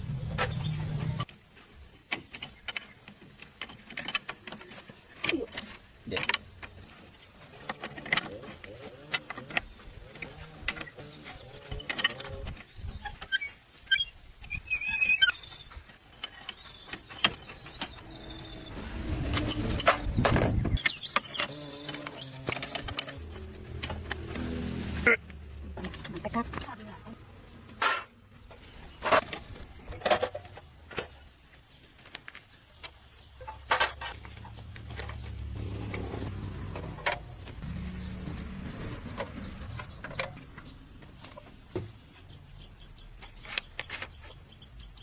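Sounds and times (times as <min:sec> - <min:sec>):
high warbling chirp: 0:13.0 - 0:16.7.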